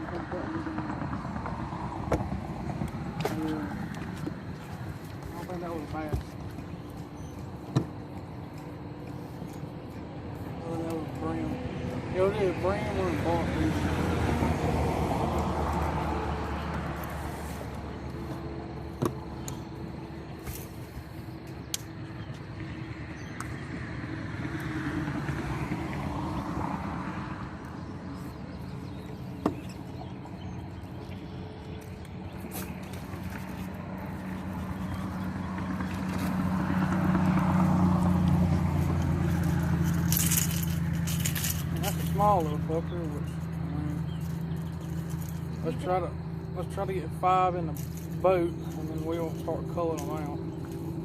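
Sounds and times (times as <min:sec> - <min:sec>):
boat motor droning: 0:00.0 - 0:51.0.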